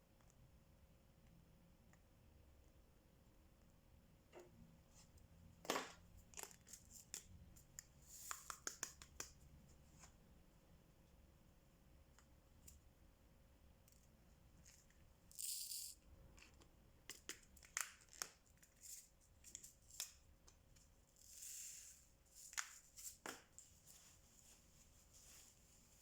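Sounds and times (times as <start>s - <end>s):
beads rattling in tray: 15.3s - 16.0s
pen clicking on beads: 15.3s - 16.0s.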